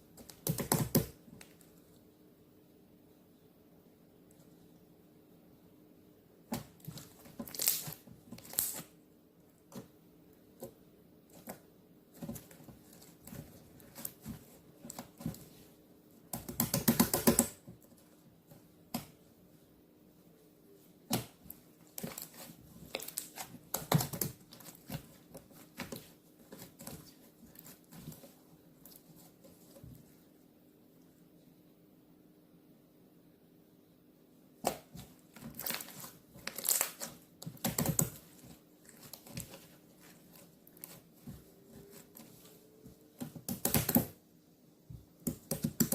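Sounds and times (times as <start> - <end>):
rapid crackling pops of slime: 0.2 - 1.5, 16.3 - 17.8, 21.1 - 28.3, 34.6 - 42.4, 43.2 - 44.2, 45.2 - 45.9.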